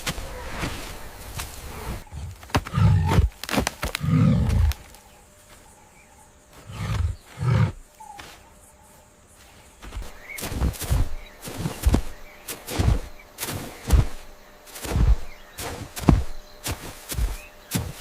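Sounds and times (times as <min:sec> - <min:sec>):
animal growling: 0:01.7 - 0:03.3, 0:03.9 - 0:04.9, 0:06.6 - 0:07.8.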